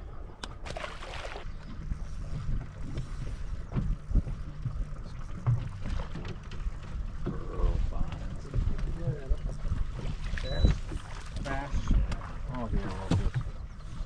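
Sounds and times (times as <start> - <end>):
boat motor humming: 0.0 - 14.0
wind buffeting microphone: 0.0 - 14.0.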